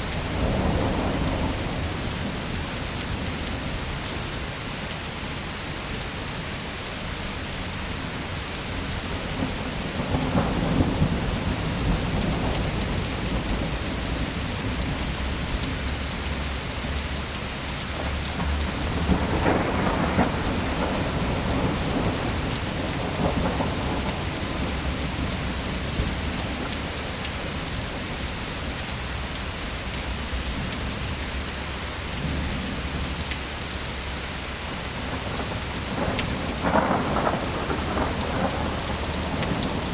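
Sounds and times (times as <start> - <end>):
thunder rumbling: 0.0 - 2.7, 8.9 - 16.5, 18.0 - 28.3, 34.7 - 39.9
steady rain: 0.0 - 39.9.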